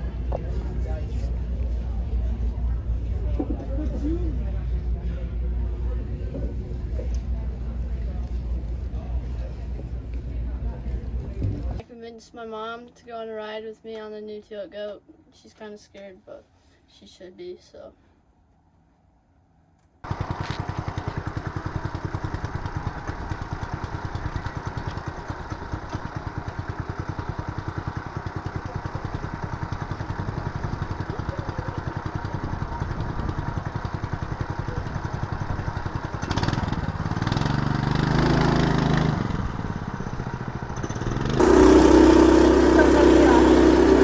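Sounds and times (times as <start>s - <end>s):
small engine revving: 29.8s - 39.8s, 40.7s - 44.0s.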